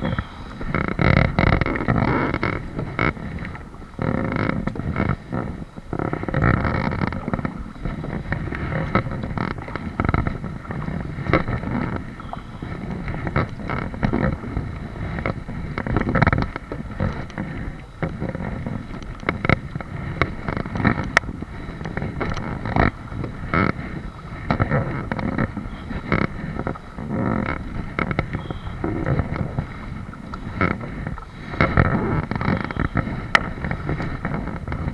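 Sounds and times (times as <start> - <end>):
water noise: 0.0 - 34.9
wind buffeting microphone: 0.0 - 34.9.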